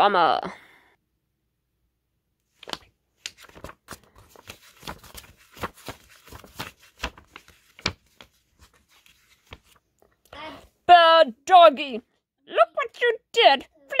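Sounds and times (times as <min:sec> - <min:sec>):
book pages flipping: 0:02.5 - 0:10.3.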